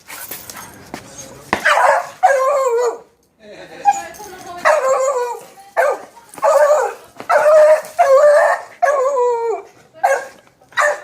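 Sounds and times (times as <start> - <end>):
dog yelping: 1.6 - 3.1, 3.9 - 11.0.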